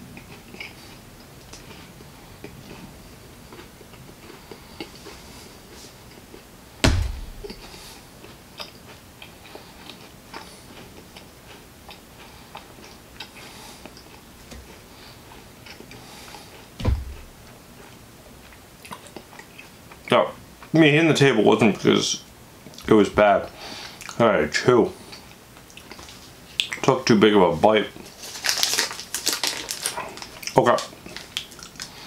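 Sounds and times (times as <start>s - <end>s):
person chewing: 3.4s - 6.4s, 7.2s - 20.1s, 25.1s - 26.8s, 28.4s - 32.0s
hand thumping tabletop: 6.8s - 7.8s, 16.8s - 17.4s.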